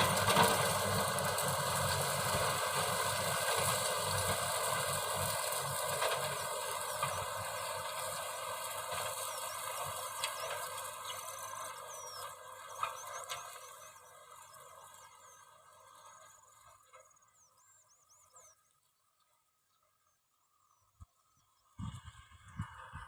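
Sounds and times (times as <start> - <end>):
tractor diesel engine running: 0.0 - 18.3.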